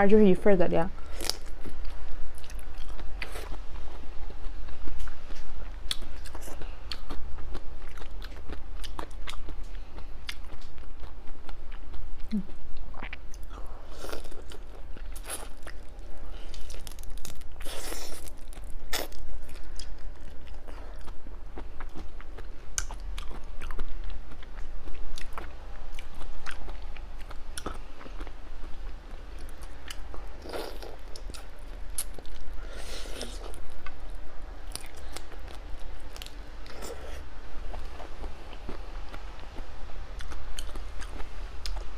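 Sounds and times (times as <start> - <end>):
steady low hum: 0.0 - 41.9
person chewing seafood: 1.0 - 34.0, 34.7 - 39.2.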